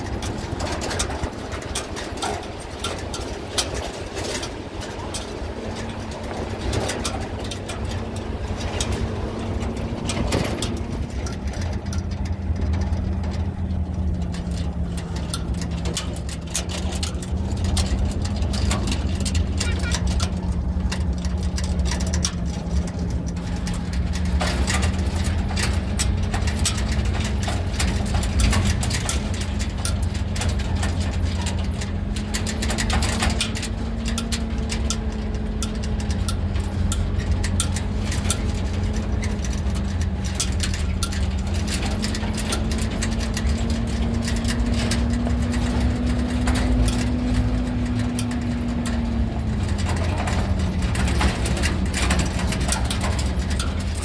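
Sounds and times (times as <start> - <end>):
low rumble: 0.0 - 33.2
car engine humming: 0.0 - 54.0
small rattles and knocks: 0.0 - 54.0.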